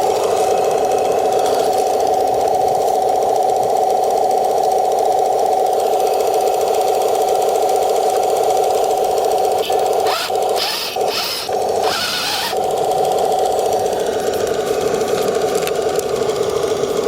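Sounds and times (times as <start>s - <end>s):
model tank drive drone: 0.0s - 17.0s
bursts of rough noise: 9.1s - 14.8s.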